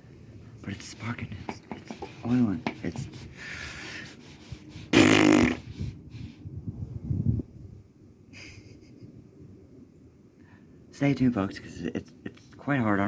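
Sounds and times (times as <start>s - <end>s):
man breathing out heavily: 3.2s - 4.9s.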